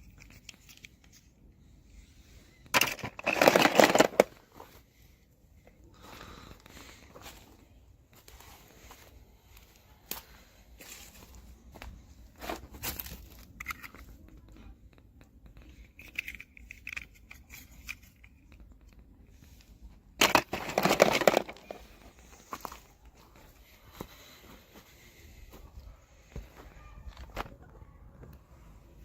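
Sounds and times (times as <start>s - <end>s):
toy packaging crinkling: 2.7s - 4.4s, 15.7s - 18.6s, 20.2s - 22.1s.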